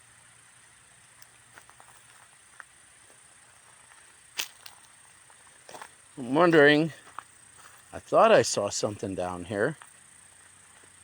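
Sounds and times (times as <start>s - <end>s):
high insect drone: 0.0s - 11.0s
faint ticks: 1.1s - 5.9s.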